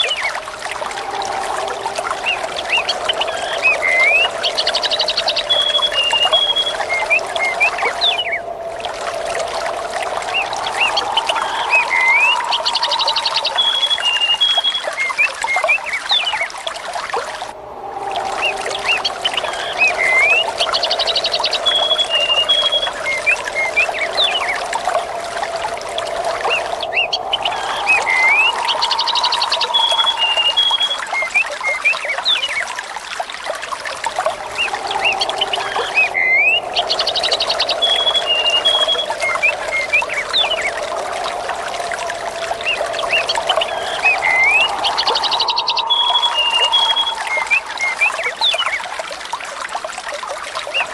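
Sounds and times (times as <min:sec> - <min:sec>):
water trickling and pouring: 0:00.0 - 0:50.9
small birds chirping: 0:42.3 - 0:48.8.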